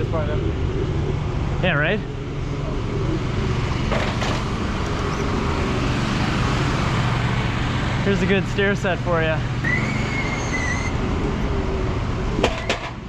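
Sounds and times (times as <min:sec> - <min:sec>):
tyre and road noise: 0:00.0 - 0:13.0.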